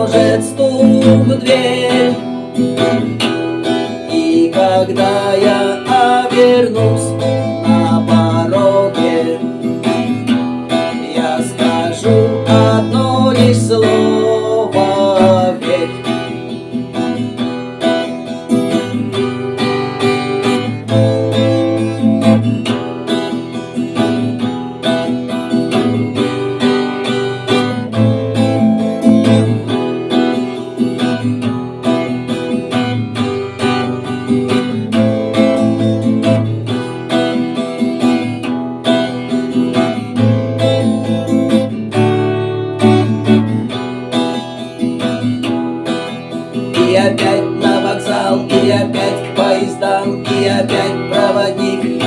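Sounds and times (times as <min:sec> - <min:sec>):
acoustic guitar strummed and plucked: 0:00.0 - 0:52.0.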